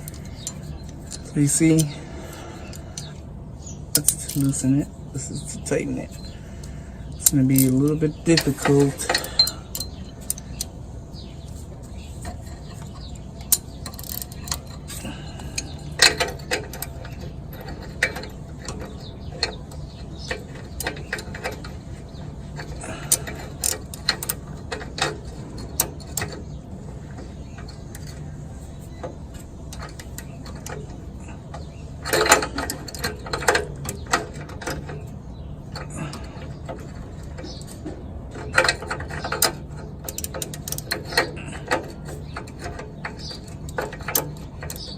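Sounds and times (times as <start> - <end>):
steady low hum: 0.0 - 44.9
metal clinks: 7.2 - 10.7
ratchet clicking: 12.2 - 26.4, 38.5 - 44.9.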